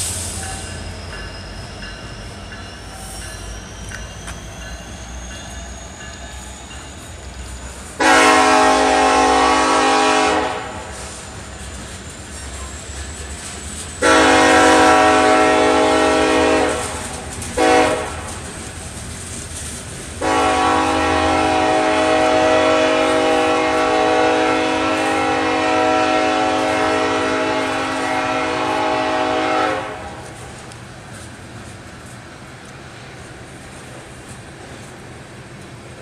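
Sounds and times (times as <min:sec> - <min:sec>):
locomotive engine rumbling: 0:00.0 - 0:36.0
locomotive air horn chord: 0:08.0 - 0:11.2, 0:14.0 - 0:17.0, 0:17.6 - 0:18.3, 0:20.2 - 0:30.3.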